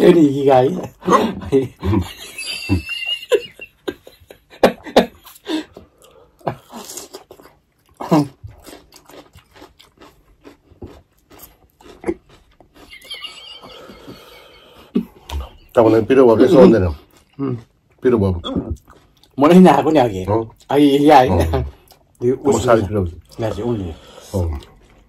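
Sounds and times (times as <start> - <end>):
crunchy chewing: 6.0 - 15.4, 16.9 - 19.6.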